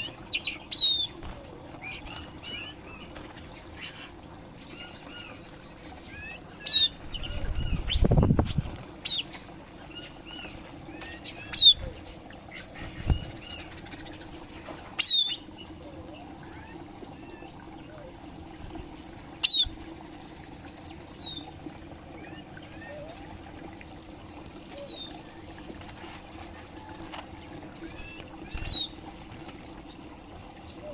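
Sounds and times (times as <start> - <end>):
soft bird twittering: 19.1 - 21.5.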